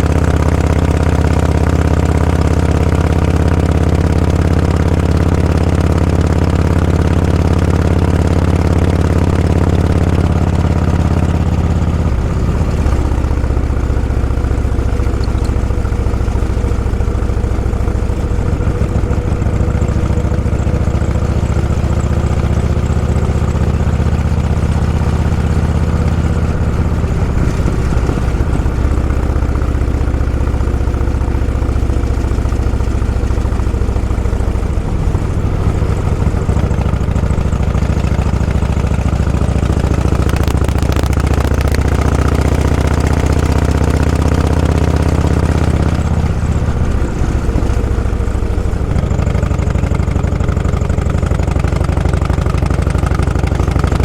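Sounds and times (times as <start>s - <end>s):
vehicle engine at low revs: 0.0s - 54.0s.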